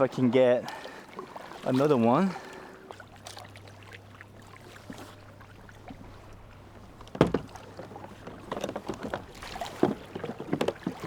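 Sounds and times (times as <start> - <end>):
paddle strokes splashing: 0.0 - 11.0
knock against kayak hull: 7.1 - 7.7.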